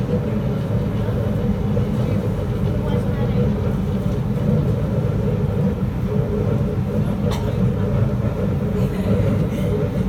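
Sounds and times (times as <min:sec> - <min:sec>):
metro train rumbling: 0:00.0 - 0:10.0.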